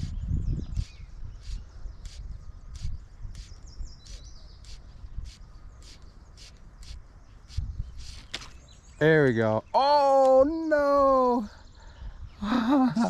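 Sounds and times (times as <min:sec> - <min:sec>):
birds calling sharply: 0:00.0 - 0:12.8
bird chirps: 0:00.0 - 0:13.0.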